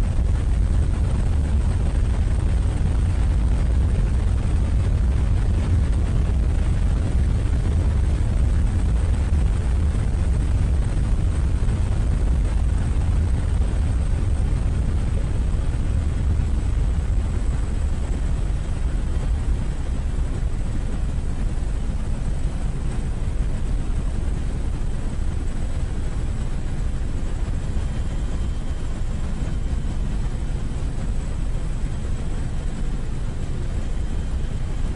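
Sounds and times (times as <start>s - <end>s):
aircraft in flight rumble: 0.0s - 34.9s.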